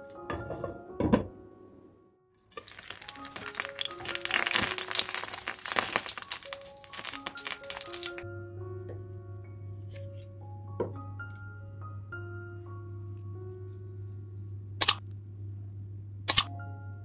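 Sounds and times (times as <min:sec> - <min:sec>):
soft background music: 0:00.0 - 0:17.0
fritters sizzling in oil: 0:02.6 - 0:08.2.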